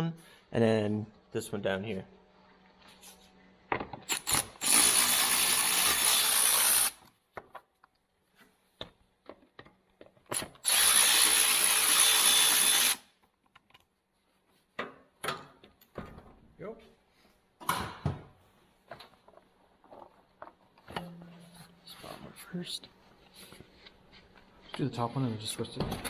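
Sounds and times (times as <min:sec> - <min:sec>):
cordless power driver running: 0:04.1 - 0:07.0, 0:10.4 - 0:13.0.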